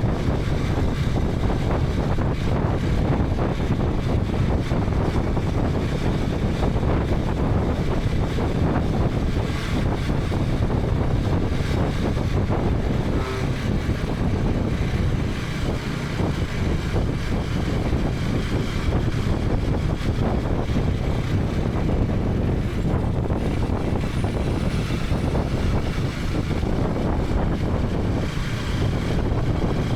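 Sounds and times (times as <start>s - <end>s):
motorcycle engine running: 0.0s - 29.9s
wind on microphone: 0.0s - 29.9s.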